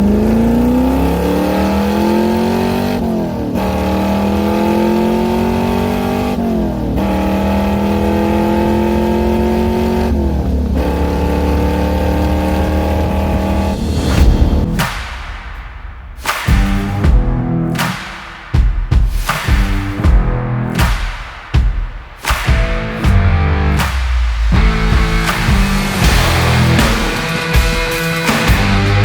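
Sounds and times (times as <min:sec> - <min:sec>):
car engine accelerating hard: 0:00.0 - 0:14.8, 0:23.1 - 0:27.2.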